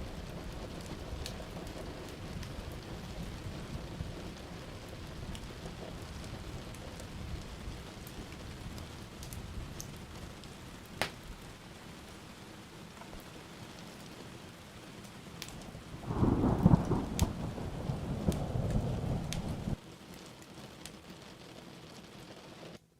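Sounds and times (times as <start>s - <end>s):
steady rain: 0.0s - 22.9s
loud thunder rumble: 15.9s - 19.8s.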